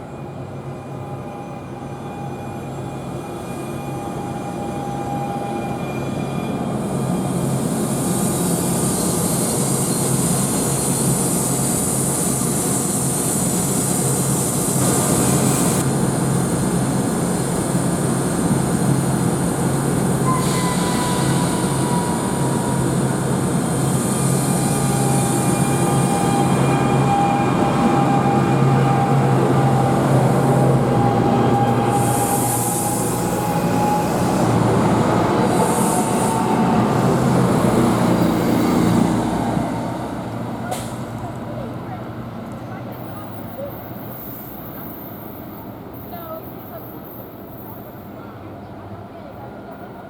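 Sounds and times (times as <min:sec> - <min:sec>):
train rolling: 0:00.2 - 0:48.8
high wheel squeal: 0:19.9 - 0:39.0.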